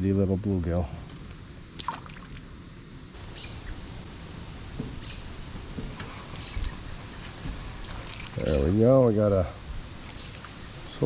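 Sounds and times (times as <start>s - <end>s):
faint sweeping bird call: 3.2s - 4.0s, 5.0s - 5.5s, 6.2s - 7.4s, 10.1s - 11.0s
bird calling high: 3.2s - 4.1s, 4.9s - 5.5s, 6.2s - 7.4s, 8.3s - 8.8s, 10.0s - 10.9s.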